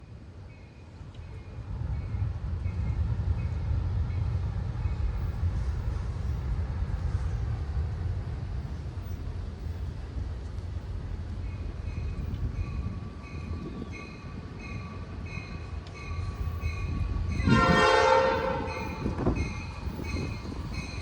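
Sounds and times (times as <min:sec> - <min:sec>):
diesel train passing: 0:00.0 - 0:21.0.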